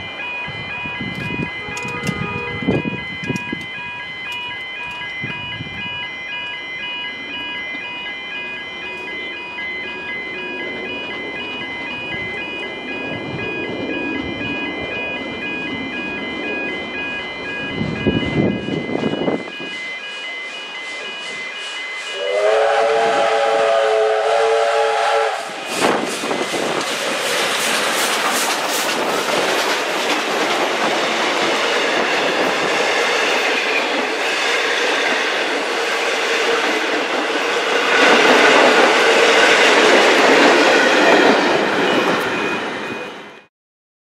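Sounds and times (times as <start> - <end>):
wheels clicking over rail joints: 1.1 - 2.5, 25.7 - 42.6
locomotive chord horn: 1.6 - 3.0, 22.1 - 25.8.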